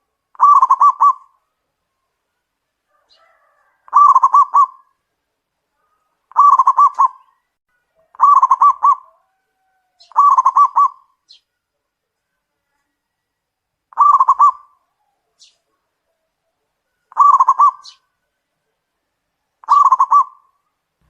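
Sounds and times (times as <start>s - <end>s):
dove cooing: 0.3s - 1.4s, 2.9s - 5.0s, 6.3s - 7.4s, 8.0s - 11.1s, 13.9s - 15.5s, 16.2s - 18.1s, 19.6s - 20.6s.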